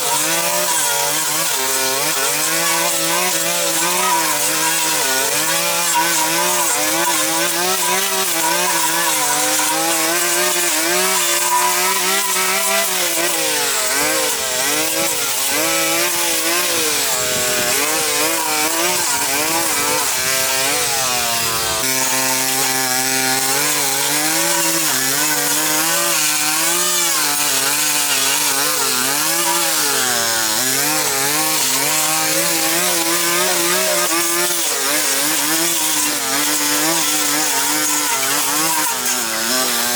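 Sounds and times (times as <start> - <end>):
power tool engine running: 3.0 - 24.1.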